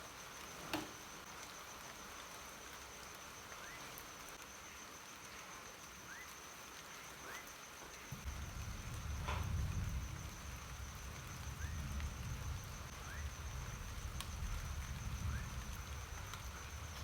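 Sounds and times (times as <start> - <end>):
rain hiss: 0.0 - 17.0
cricket-like insect calling: 0.1 - 17.0.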